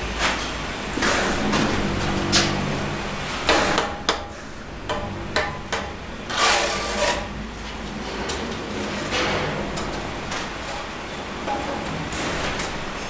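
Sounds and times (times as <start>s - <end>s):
low steady hum: 0.0s - 13.0s
trowel scraping mortar: 6.3s - 7.3s.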